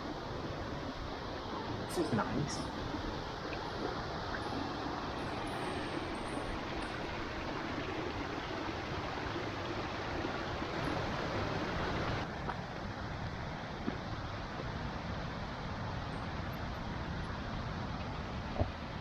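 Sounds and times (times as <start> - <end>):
waterfall rushing: 0.0 - 12.3.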